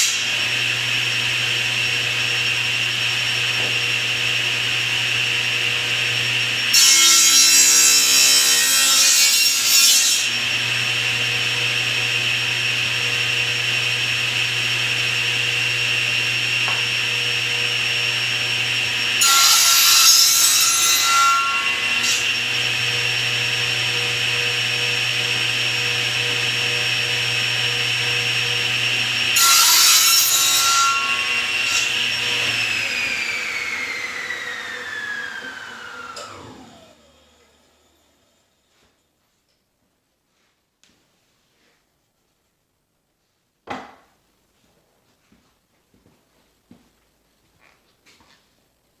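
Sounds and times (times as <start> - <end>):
saw blade cutting wood: 0.0 - 37.5
table saw running: 0.0 - 38.6
saw winding down whine: 21.3 - 38.7.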